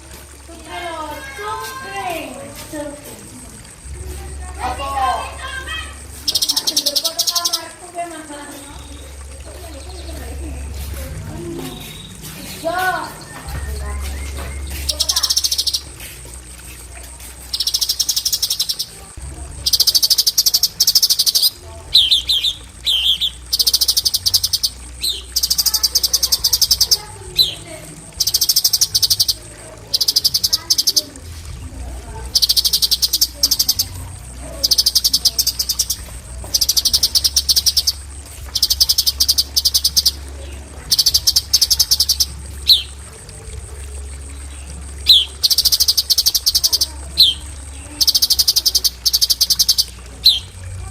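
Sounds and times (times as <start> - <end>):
bird rapid high trilling: 5.2 - 7.8, 11.6 - 15.9, 17.5 - 19.0, 19.6 - 27.6, 28.2 - 31.1, 32.4 - 34.0, 34.6 - 40.2, 40.8 - 43.0, 45.0 - 50.5.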